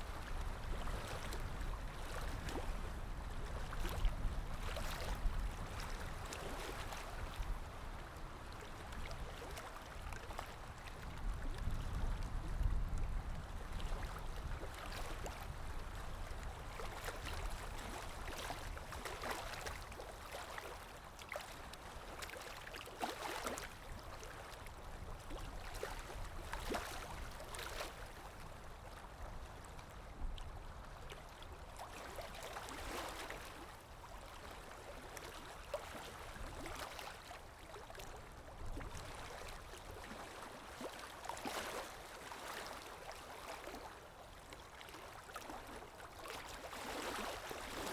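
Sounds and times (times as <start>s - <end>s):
water splashing and gurgling: 13.7s - 28.3s, 31.3s - 47.9s.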